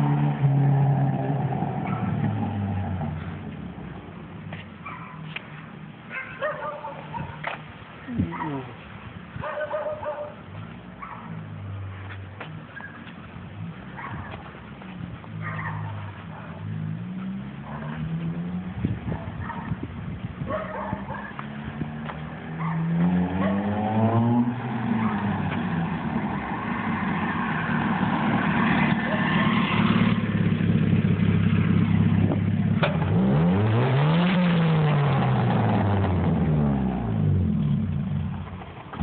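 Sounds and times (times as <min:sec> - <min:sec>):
car engine revving: 0:00.0 - 0:04.0, 0:21.1 - 0:39.0.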